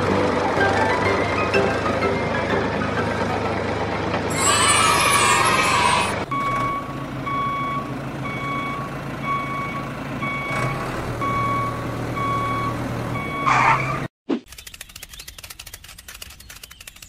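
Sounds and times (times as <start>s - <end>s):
low engine hum: 0.0s - 14.1s
reversing alarm beeping: 4.4s - 13.9s.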